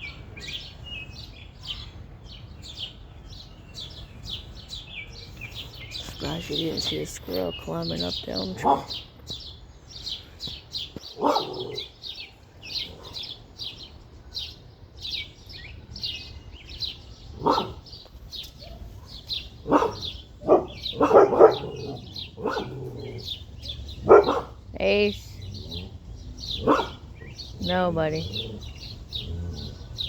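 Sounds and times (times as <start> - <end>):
small birds chirping: 0.0 - 30.0
dog barking: 8.6 - 9.0, 11.1 - 11.9, 17.4 - 17.8, 18.6 - 23.3, 23.9 - 24.6, 26.5 - 27.3.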